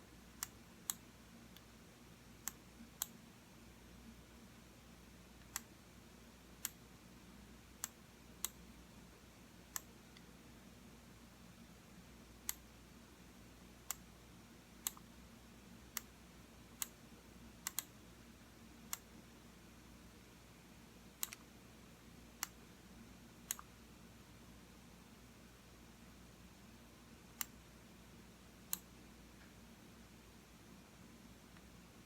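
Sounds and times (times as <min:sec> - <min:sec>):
faint room hiss: 0:00.0 - 0:32.0
computer mouse button clicking: 0:17.7 - 0:17.9.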